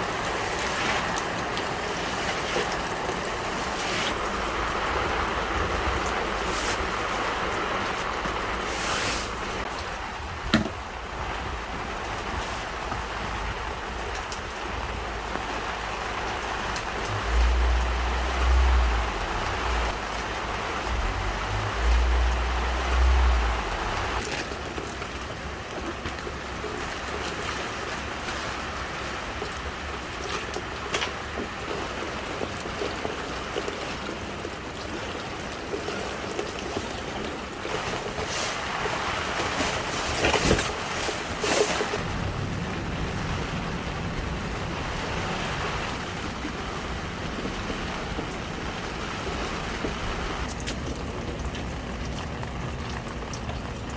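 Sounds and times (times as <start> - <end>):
heavy rain pouring: 0.0 - 53.9
heavy rain hissing: 2.7 - 24.2
raindrop taps: 9.3 - 27.4, 45.6 - 53.9.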